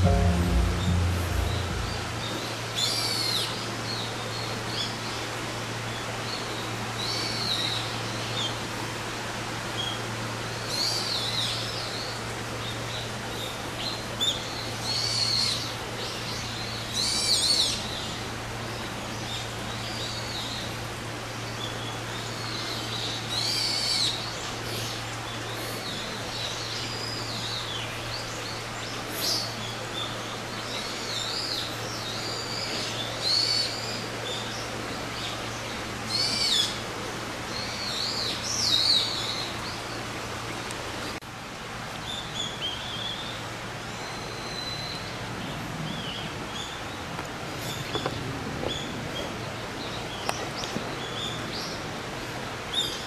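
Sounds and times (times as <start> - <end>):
low steady hum: 0.0 - 3.2.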